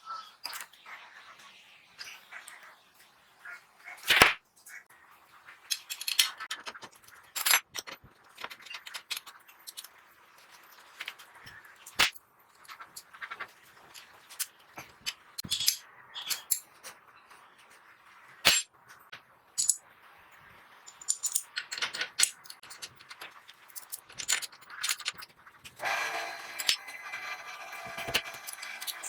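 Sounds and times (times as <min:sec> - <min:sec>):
metal parts and tools clinking: 0:05.7 - 0:17.0, 0:19.6 - 0:19.8, 0:20.9 - 0:29.0.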